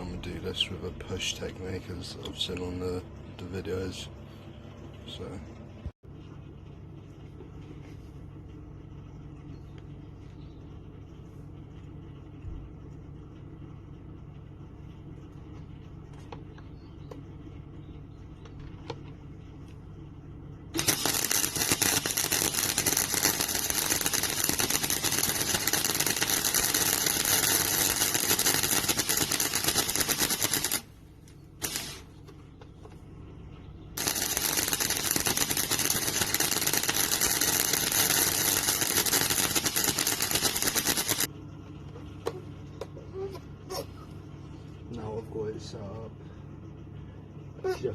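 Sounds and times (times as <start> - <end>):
low steady hum: 0.0 - 47.9
welder arc crackling: 20.7 - 32.3, 34.0 - 41.3.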